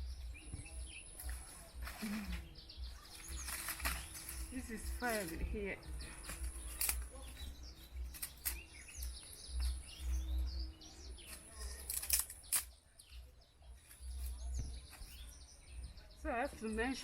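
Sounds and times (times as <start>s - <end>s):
small birds chirping: 0.0s - 17.0s
sharp clicks or snaps: 6.7s - 7.2s, 11.3s - 12.7s.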